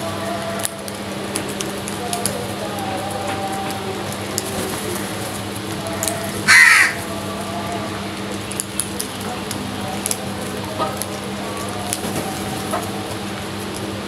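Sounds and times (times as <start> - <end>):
crow cawing: 6.4 - 7.1.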